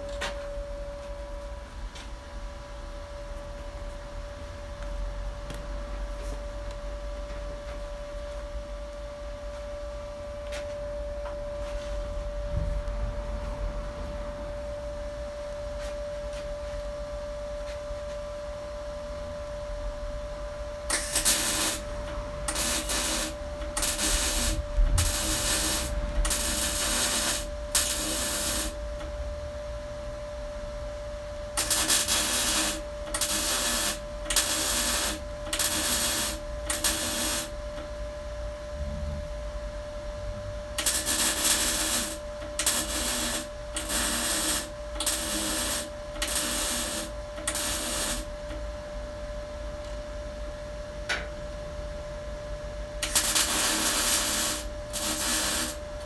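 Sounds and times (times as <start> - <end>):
steady hum: 0.0 - 56.0
welder crackling sizzle: 20.9 - 29.2, 31.5 - 37.9, 40.7 - 48.8, 53.0 - 56.0.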